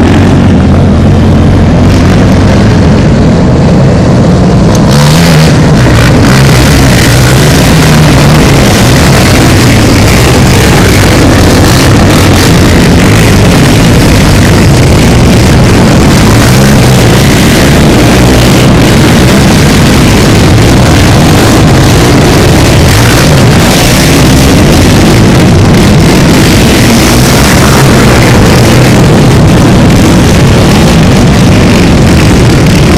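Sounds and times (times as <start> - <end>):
many off-road engines running: 0.0 - 32.9.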